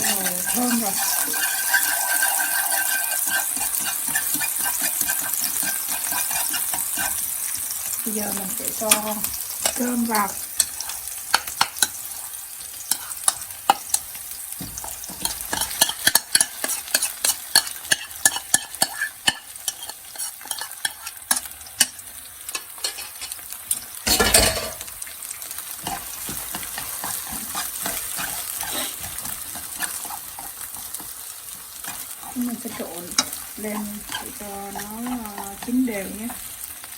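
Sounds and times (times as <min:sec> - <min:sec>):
utensil scraping a pan: 0:00.0 - 0:07.7, 0:08.4 - 0:21.9, 0:22.5 - 0:23.4, 0:24.1 - 0:36.4
rice sizzling in hot oil: 0:00.0 - 0:36.9.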